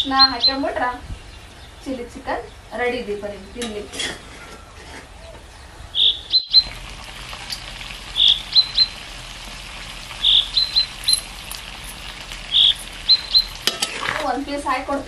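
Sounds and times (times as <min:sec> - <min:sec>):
bird chirping phrase: 0:05.2 - 0:06.7, 0:08.2 - 0:09.0, 0:10.2 - 0:11.3, 0:12.5 - 0:13.6
chicken sizzling in pan: 0:06.5 - 0:15.0.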